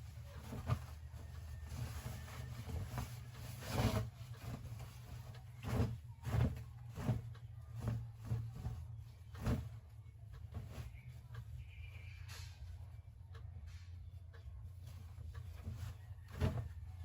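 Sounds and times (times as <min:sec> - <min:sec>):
soft knocks and bumps: 0:00.1 - 0:11.2, 0:14.7 - 0:17.0.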